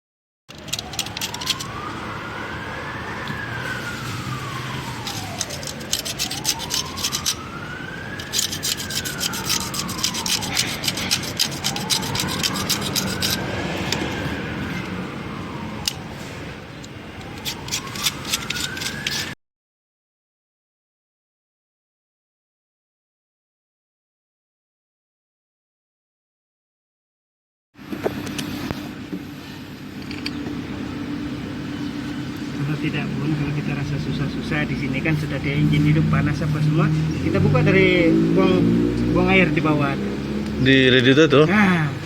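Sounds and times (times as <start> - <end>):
siren-like wail: 0.5 - 19.4, 30.9 - 42.0
scratchy rubbing noise with crackles: 5.0 - 7.4, 8.2 - 13.5.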